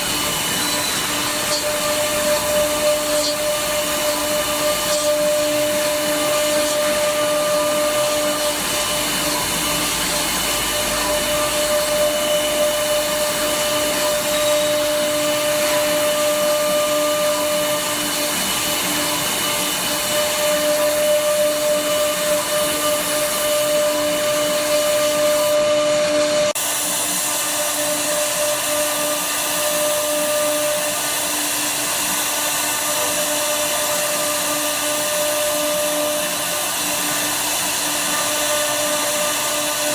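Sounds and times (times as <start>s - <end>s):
router bit cutting wood: 0.0s - 39.9s
router spindle whine: 0.0s - 39.9s.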